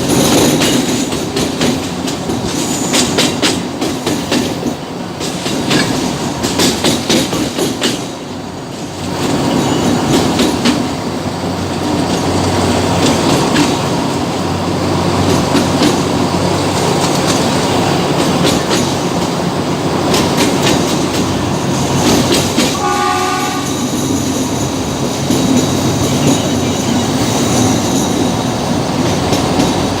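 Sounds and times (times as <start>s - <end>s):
wheels clicking over rail joints: 0.0s - 22.8s
train rumbling on rails: 0.0s - 30.0s
train horn: 22.6s - 23.9s.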